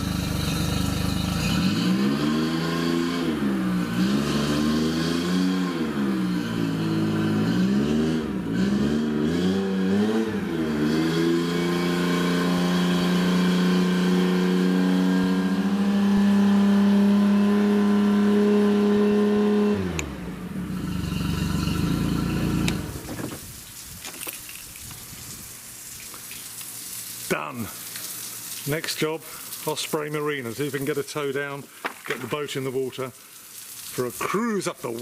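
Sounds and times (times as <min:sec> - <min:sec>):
boat engine revving: 0:00.0 - 0:23.5.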